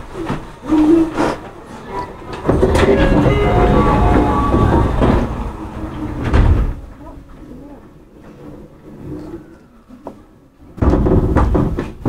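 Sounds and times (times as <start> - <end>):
commuter train interior rumble: 0.0 - 10.7
loud train noise burst: 1.7 - 7.6.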